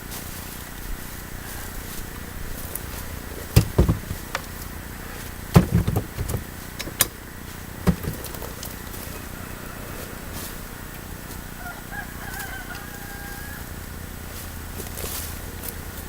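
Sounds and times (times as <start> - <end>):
smaller wood knocks: 3.4 - 4.5, 5.5 - 7.1, 7.8 - 8.5
axe chopping wood: 3.6 - 4.5, 5.6 - 7.1, 7.9 - 8.4.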